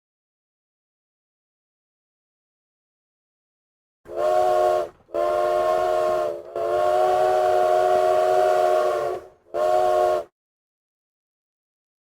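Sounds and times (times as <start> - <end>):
steam locomotive chime whistle: 4.1 - 10.3.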